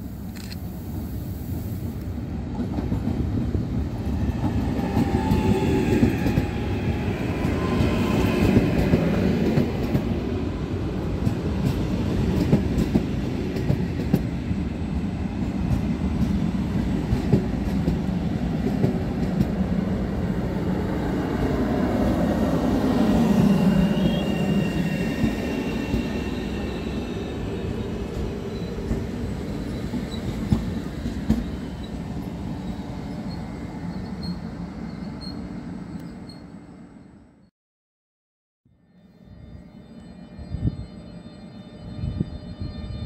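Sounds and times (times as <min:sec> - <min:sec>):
electric train rumbling past: 0:00.0 - 0:37.5, 0:38.8 - 0:43.0
faint high whine: 0:38.7 - 0:43.0.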